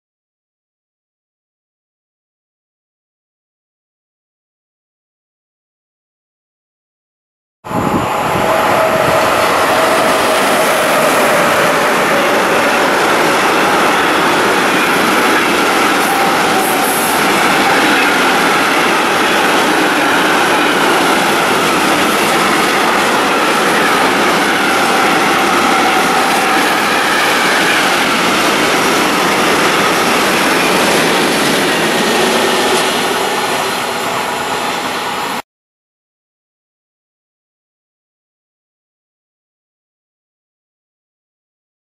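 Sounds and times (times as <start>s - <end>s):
train wheels roaring on rails: 7.7s - 35.4s.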